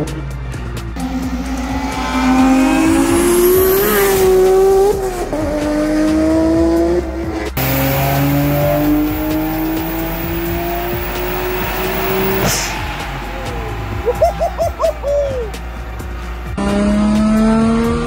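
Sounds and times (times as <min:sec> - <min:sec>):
car engine on a dyno: 0:01.0 - 0:13.5, 0:16.6 - 0:18.0
car engine revving: 0:01.0 - 0:14.1, 0:15.6 - 0:18.0.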